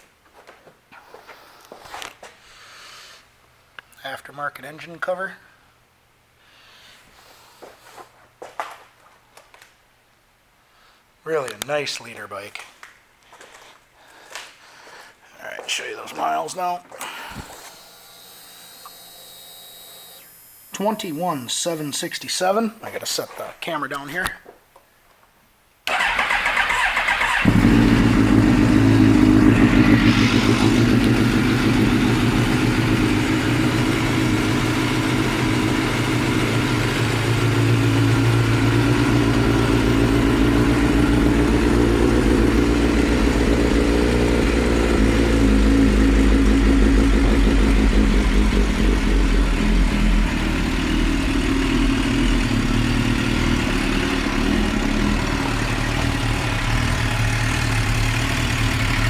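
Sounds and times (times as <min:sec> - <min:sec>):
motorcycle engine idling: 0:26.0 - 0:59.0.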